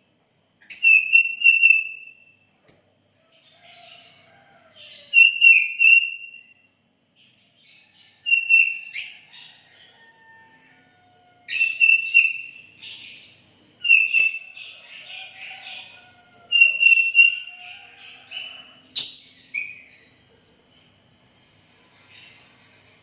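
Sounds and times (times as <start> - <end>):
bird singing whistled notes: 0.7 - 3.0, 5.1 - 6.6, 8.3 - 9.1, 11.5 - 13.1, 13.8 - 14.6, 16.5 - 17.6.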